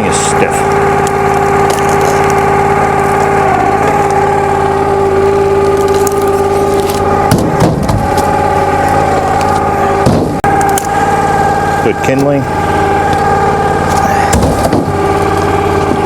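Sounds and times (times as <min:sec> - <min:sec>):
gas engine humming: 0:00.0 - 0:16.0
rough crunching noise: 0:00.5 - 0:11.4.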